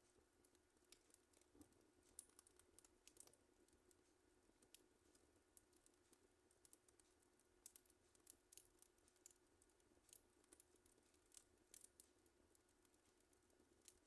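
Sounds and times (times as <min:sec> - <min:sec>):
wood fire crackling and popping: 0:00.1 - 0:14.0.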